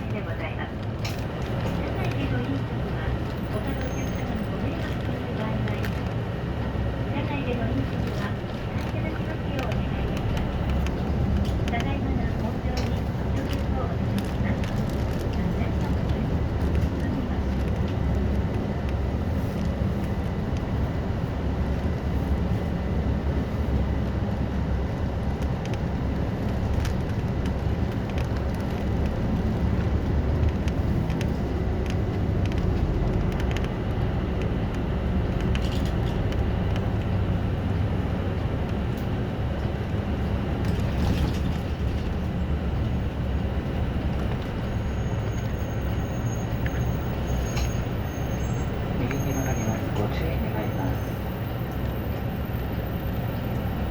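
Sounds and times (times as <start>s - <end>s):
bus engine and road rumble: 0.0s - 53.9s.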